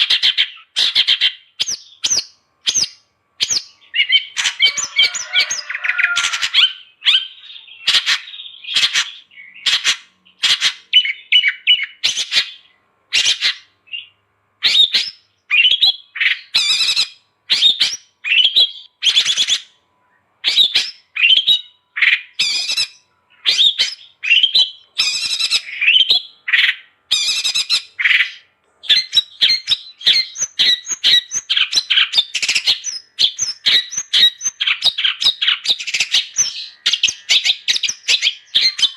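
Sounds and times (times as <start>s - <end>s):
shrike singing harsh chatter: 3.4s - 9.6s.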